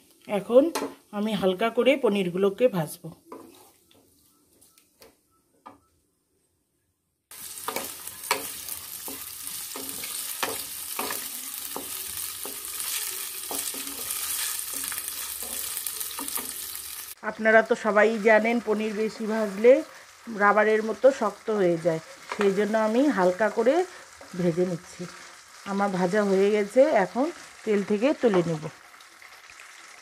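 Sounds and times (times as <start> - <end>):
cheese cubes sizzling in oil: 7.3 - 17.2, 17.8 - 30.0
wooden spatula scraping pan: 7.6 - 16.8.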